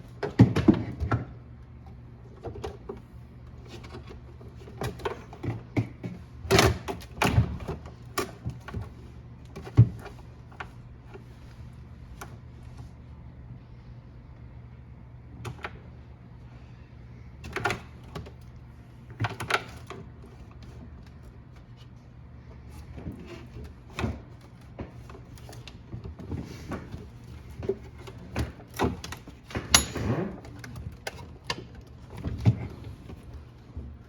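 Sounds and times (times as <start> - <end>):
clicks and rattles of plastic parts: 17.4 - 21.9.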